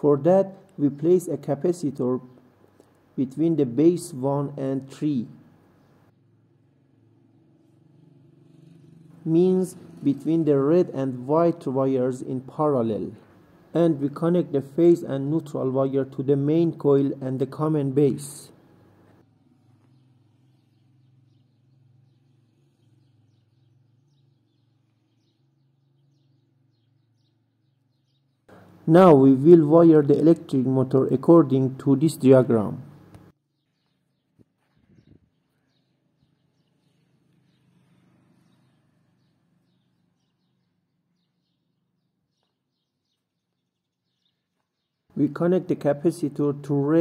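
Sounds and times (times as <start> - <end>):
faint bird chirping: 0.0 - 47.0
faint bird chirps: 33.4 - 45.2.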